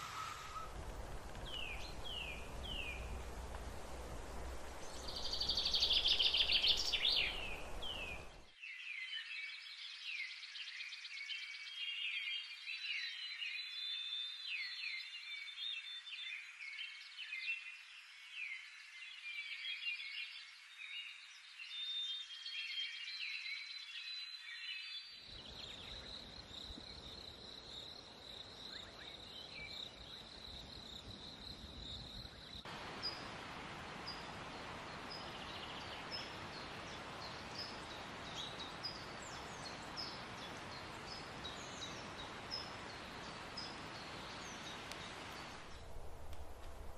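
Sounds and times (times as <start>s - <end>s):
soft hiss: 0.0s - 8.5s, 25.3s - 46.9s
birds chirping chorus: 0.0s - 10.1s, 21.7s - 46.9s.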